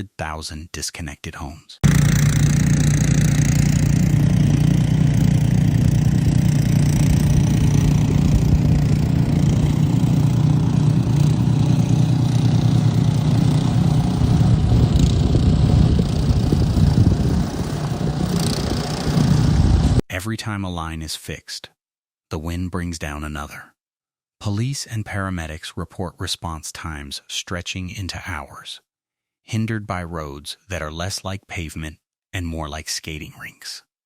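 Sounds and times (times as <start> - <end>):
engine running: 1.8 - 20.0.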